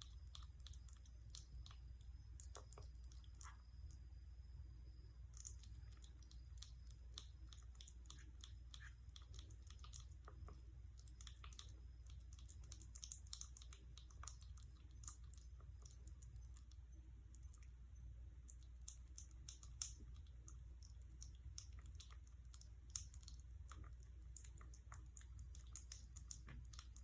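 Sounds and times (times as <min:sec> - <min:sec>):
steady low hum: 0:00.0 - 0:27.0
soft clicks and smacks: 0:05.3 - 0:17.8, 0:18.4 - 0:27.0.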